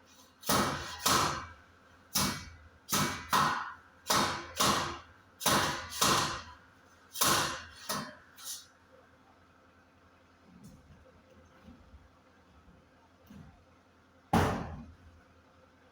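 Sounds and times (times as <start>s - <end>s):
hammer striking metal: 0.4s - 1.5s, 2.2s - 6.5s.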